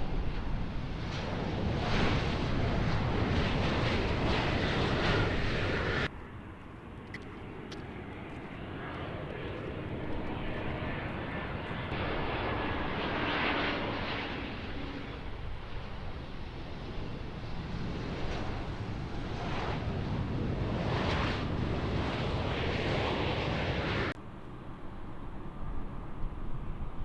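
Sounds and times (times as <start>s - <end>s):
aircraft engine with faint whine: 0.0s - 27.0s
airliner engine noise: 0.0s - 27.0s.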